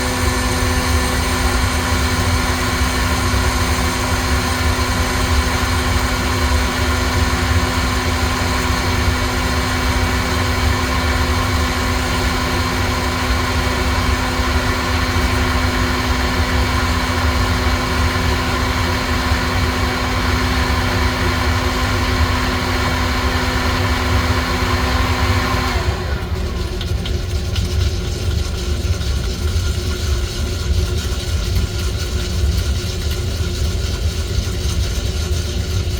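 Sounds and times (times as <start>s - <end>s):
electric blower humming and whining: 0.0s - 27.0s.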